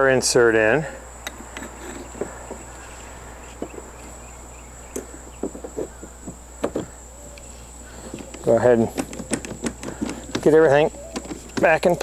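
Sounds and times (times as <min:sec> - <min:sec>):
steady high-pitched whine: 0:00.0 - 0:12.0
stand parts knocking and clicking: 0:01.2 - 0:02.7, 0:04.9 - 0:07.0, 0:08.0 - 0:12.0.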